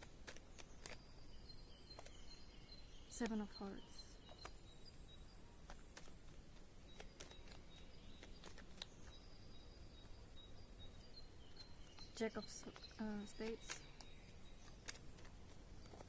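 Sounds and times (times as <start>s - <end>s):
playing cards handled: 0.0s - 1.3s, 1.9s - 2.3s, 5.6s - 9.2s, 12.7s - 16.0s
faint high steady tone: 1.3s - 5.6s.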